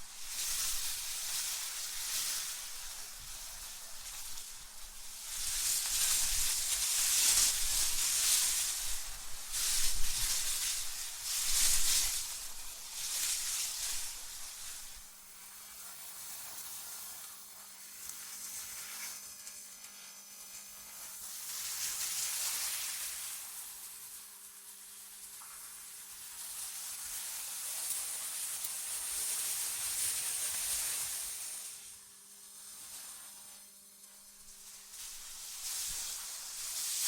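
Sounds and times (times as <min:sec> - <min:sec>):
airy wind hiss: 0:00.0 - 0:15.5, 0:27.5 - 0:37.0.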